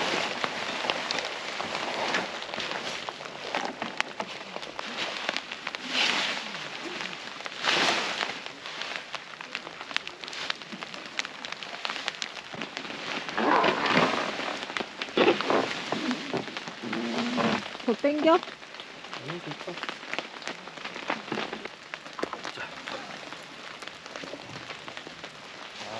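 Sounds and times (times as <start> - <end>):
raindrops ticking on surface: 0.0 - 25.9
steady rain falling: 0.0 - 25.9.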